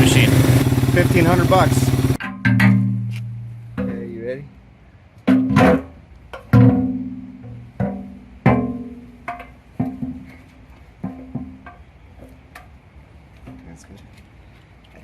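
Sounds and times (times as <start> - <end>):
plucked bass notes: 0.0 - 4.3.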